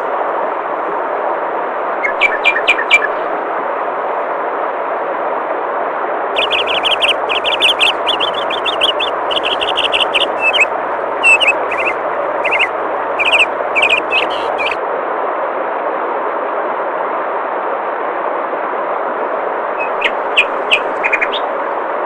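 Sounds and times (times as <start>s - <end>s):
flowing water rushing: 6.4s - 14.8s
songbird chirping: 6.4s - 14.8s, 19.8s - 21.5s.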